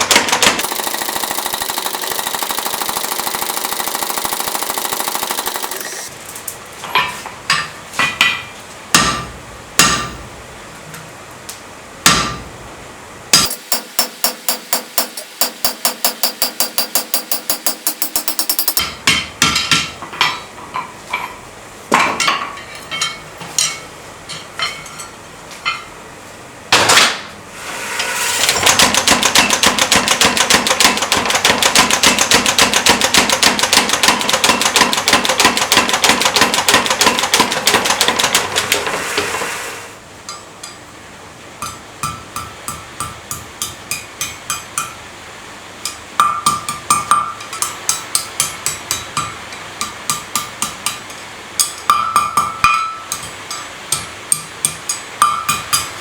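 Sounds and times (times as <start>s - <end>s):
hammer blows on anvil: 7.0s - 10.3s.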